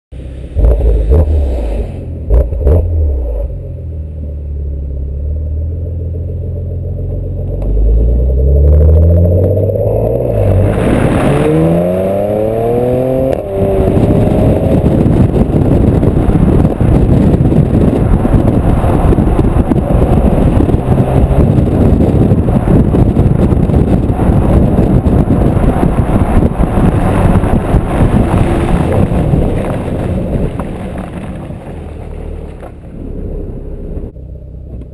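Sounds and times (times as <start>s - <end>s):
car engine revving: 0.2s - 34.8s
loud steady rush: 9.8s - 33.4s.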